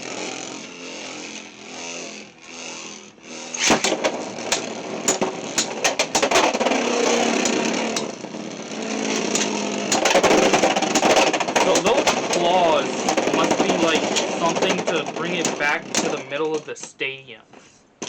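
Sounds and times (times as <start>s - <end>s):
spinning tops whirring: 0.0s - 16.9s
spinning tops clacking together: 3.4s - 8.2s, 9.1s - 17.0s
loud crack: 3.5s - 8.3s, 9.0s - 16.7s.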